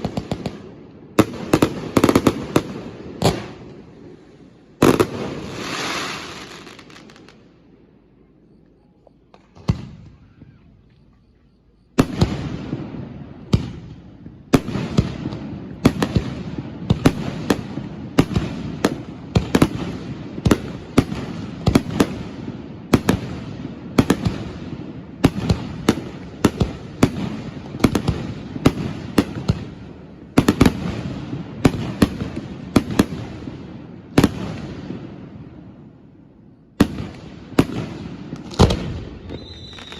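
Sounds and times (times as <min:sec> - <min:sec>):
firework crackling: 0:00.0 - 0:07.5, 0:36.8 - 0:39.9.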